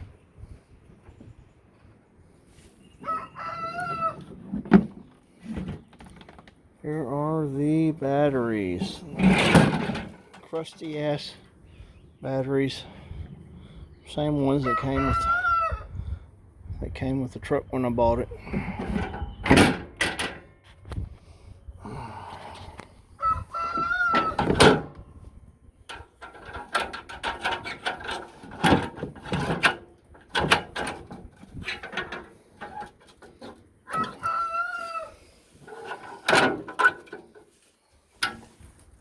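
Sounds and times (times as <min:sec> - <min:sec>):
rooster crowing: 0:03.0 - 0:04.2, 0:23.1 - 0:24.4, 0:33.9 - 0:35.2
knocks and rustling: 0:09.1 - 0:10.5.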